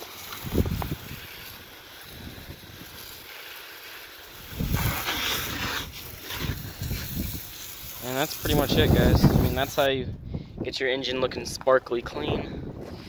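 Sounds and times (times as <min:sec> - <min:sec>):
hose spraying water: 0:00.0 - 0:09.9
wind buffeting microphone: 0:00.4 - 0:01.5, 0:04.5 - 0:05.1, 0:06.0 - 0:07.6, 0:08.4 - 0:13.0.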